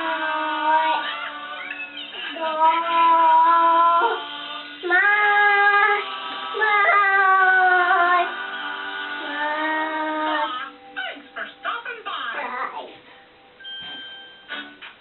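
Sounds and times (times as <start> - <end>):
music: 0.0 - 15.0.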